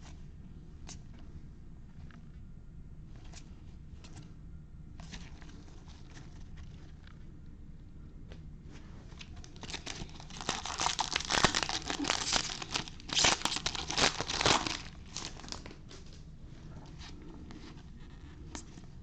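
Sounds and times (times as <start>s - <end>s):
foil wrapper tearing and crinkling: 9.5s - 15.8s.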